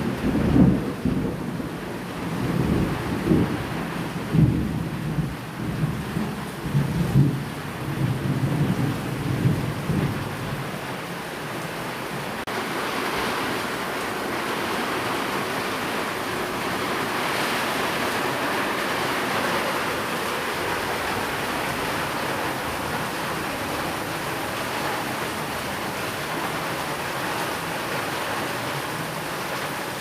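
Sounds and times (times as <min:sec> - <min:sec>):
bright rain hiss: 0:00.0 - 0:30.0
steady rain: 0:00.0 - 0:30.0
low thunder rumble: 0:00.1 - 0:10.8.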